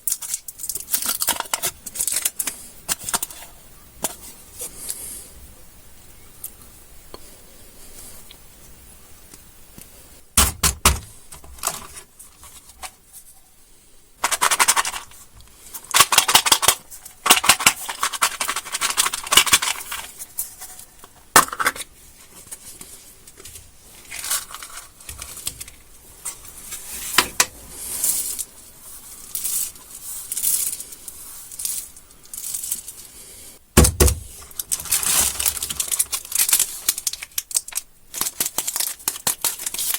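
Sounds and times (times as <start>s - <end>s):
plastic wrappers crinkling and tearing: 0.0s - 5.0s, 11.3s - 13.0s, 14.2s - 33.1s, 34.1s - 39.9s
heavy thump: 33.8s - 34.4s
candies clicking together: 34.5s - 39.9s.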